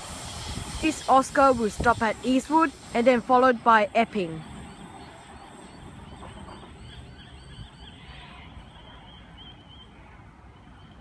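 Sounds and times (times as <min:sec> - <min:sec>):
bird chirps: 0:04.2 - 0:11.0.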